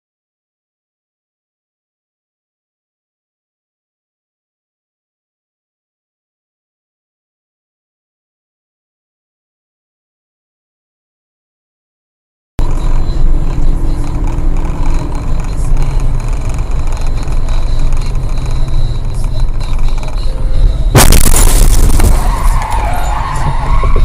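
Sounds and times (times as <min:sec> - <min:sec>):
car road and engine rumble: 0:12.6 - 0:24.0
loud bang: 0:20.9 - 0:24.0.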